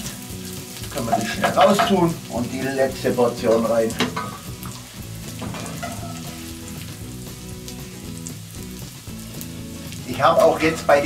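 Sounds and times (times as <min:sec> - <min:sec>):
sausage and onions sizzling: 0:00.0 - 0:11.0.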